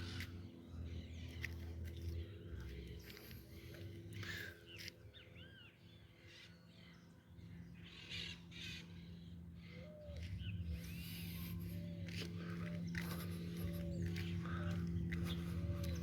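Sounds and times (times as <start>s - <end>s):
birds cawing: 7.8s - 16.0s.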